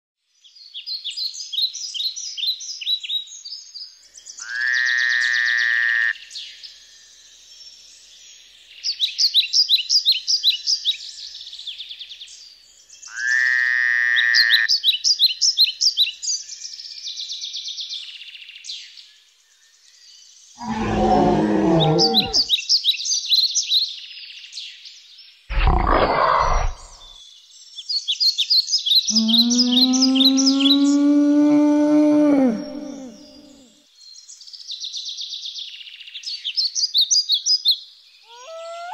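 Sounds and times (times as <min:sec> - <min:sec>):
buzzing croak-like call: 0:13.2 - 0:14.6, 0:20.6 - 0:22.5, 0:25.5 - 0:27.2, 0:29.1 - 0:33.7
birds chirping: 0:20.6 - 0:22.5, 0:25.5 - 0:27.2, 0:29.1 - 0:33.7, 0:38.2 - 0:38.9
deep growl: 0:20.6 - 0:22.5, 0:25.5 - 0:27.2, 0:29.2 - 0:33.7.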